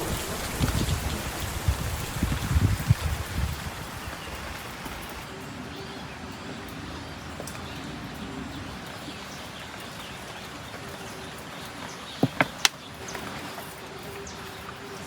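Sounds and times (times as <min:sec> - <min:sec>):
steady rain hiss: 0:00.0 - 0:15.0
sharp knocks: 0:12.2 - 0:12.7.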